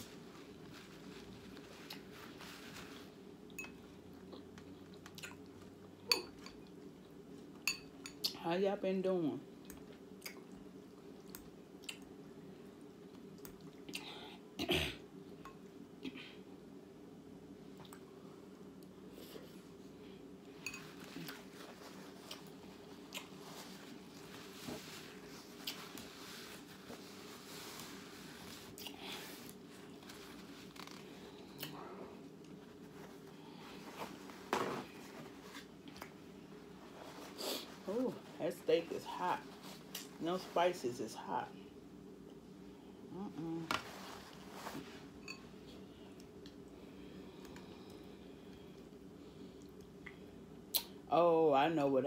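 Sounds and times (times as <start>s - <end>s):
steady low hum: 0.0s - 52.0s
person chewing: 4.0s - 5.7s, 22.1s - 23.4s, 25.5s - 26.2s
wet mouth clicks: 11.3s - 12.1s, 50.0s - 51.0s.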